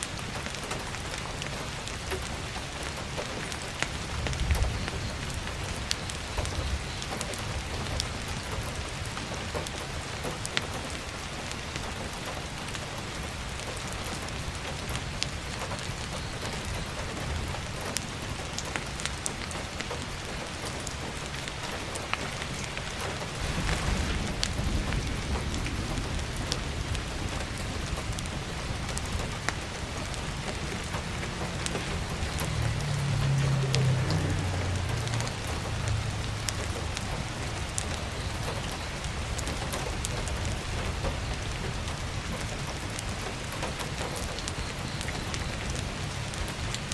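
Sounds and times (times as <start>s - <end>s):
firewood crackling in stove: 0.0s - 46.9s
rain drumming on skylight: 0.0s - 46.9s
low rumble: 23.3s - 38.6s.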